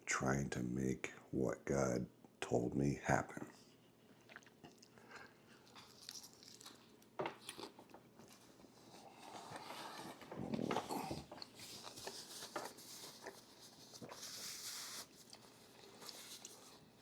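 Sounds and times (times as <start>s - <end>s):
chewing and mouth clicks: 4.1s - 9.7s
rustling: 8.2s - 17.0s.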